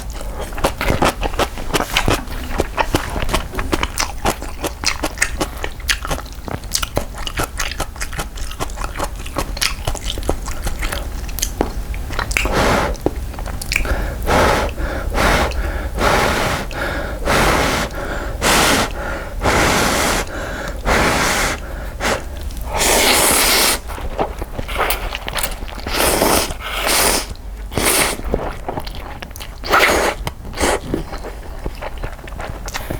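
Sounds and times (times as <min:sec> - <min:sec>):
wet chewing and crunching: 0:00.0 - 0:14.9, 0:21.5 - 0:32.9
slurping noodles: 0:12.4 - 0:13.1, 0:13.8 - 0:28.7, 0:29.6 - 0:31.5.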